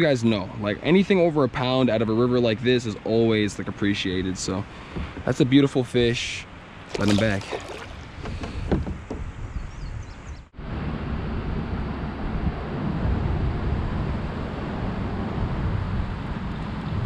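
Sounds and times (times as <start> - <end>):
wind noise on microphone: 7.4 - 17.0.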